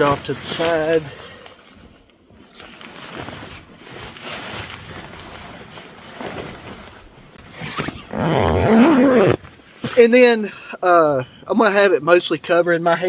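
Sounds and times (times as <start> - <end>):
nylon sleeping bag rustling: 2.5 - 9.5.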